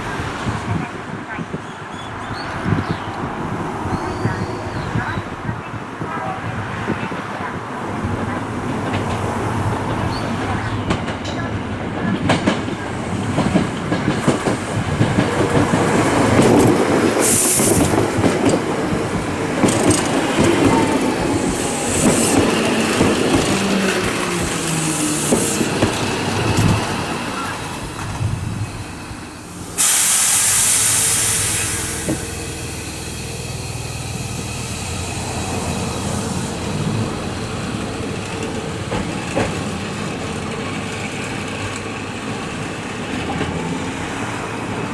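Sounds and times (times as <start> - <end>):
electric train rumbling: 0.0 - 44.9
standing train hum: 0.0 - 44.9
air brake hiss: 17.2 - 18.0, 29.5 - 36.5.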